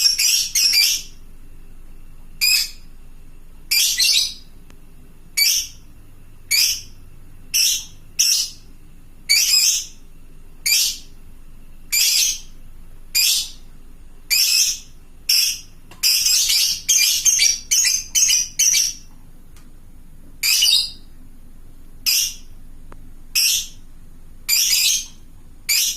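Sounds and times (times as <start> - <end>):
lovebird shrill calls: 0.0 - 1.2, 2.4 - 2.8, 3.7 - 4.4, 5.4 - 5.8, 6.5 - 8.6, 9.3 - 10.0, 10.6 - 11.1, 11.9 - 12.5, 13.2 - 13.6, 14.3 - 19.1, 20.4 - 21.0, 22.0 - 22.5, 23.4 - 23.8, 24.5 - 25.9.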